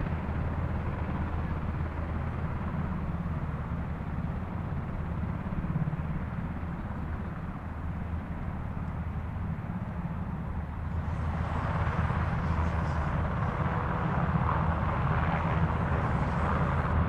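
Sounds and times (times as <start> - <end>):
helicopter rotors and engines: 0.0 - 17.0.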